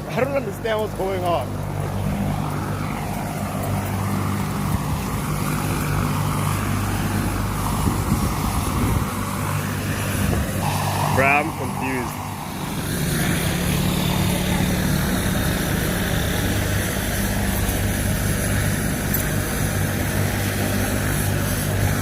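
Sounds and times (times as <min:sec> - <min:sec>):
helicopter engine and rotor hum: 0:00.0 - 0:22.0.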